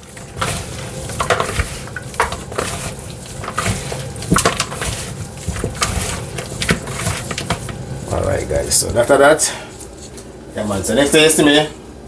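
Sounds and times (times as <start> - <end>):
food being stirred in a bowl: 0.0 - 9.2.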